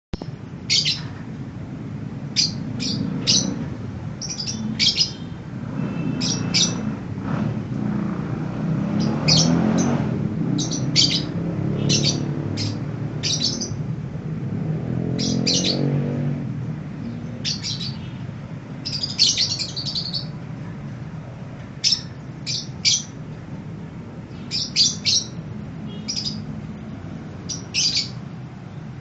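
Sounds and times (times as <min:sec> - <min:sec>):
lovebird chirping: 0:00.2 - 0:01.1, 0:02.3 - 0:07.0, 0:08.9 - 0:13.8, 0:15.0 - 0:16.0, 0:17.0 - 0:18.2, 0:18.8 - 0:20.4, 0:21.8 - 0:23.2, 0:24.3 - 0:26.5, 0:27.4 - 0:28.8.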